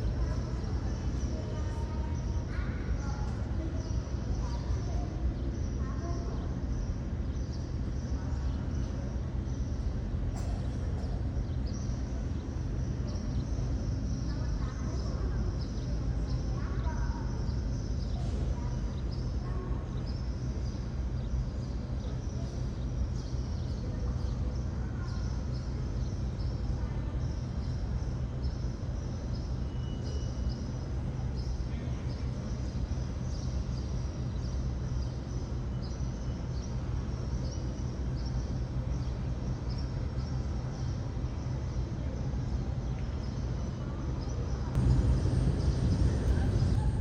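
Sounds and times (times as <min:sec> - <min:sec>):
low outdoor rumble: 0:38.6 - 0:47.0.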